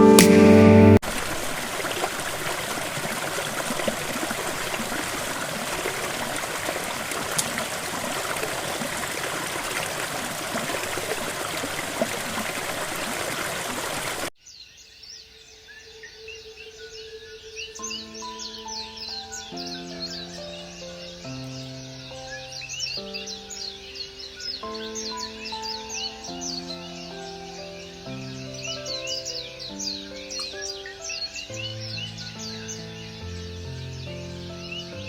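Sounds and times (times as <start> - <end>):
stream water rushing: 1.0 - 14.3
faint bird chirps: 14.4 - 35.0.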